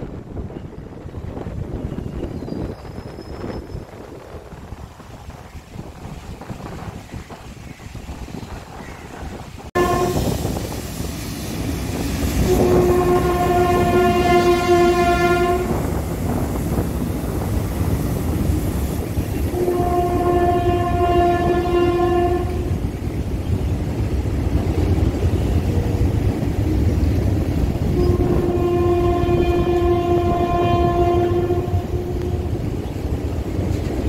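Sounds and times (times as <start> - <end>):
train rumbling over steel bridge: 0.0 - 34.0
wind on microphone: 0.0 - 34.0
locomotive horn blasts: 9.8 - 10.3, 12.4 - 15.9, 19.5 - 22.8, 27.8 - 32.7.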